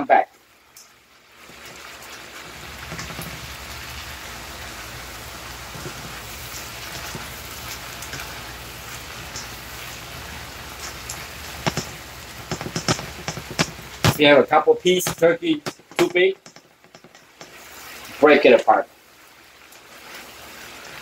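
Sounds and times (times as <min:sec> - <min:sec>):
meat and vegetables sizzling: 0:00.0 - 0:21.0
wooden spatula tapping pan: 0:02.6 - 0:17.8.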